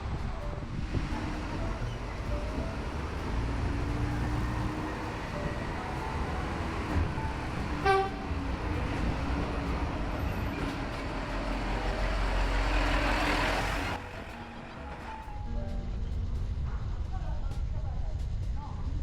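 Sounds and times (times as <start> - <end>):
road traffic going by: 0.0 - 16.2
vehicle approaching: 0.0 - 17.0
short horn toot: 7.8 - 9.1.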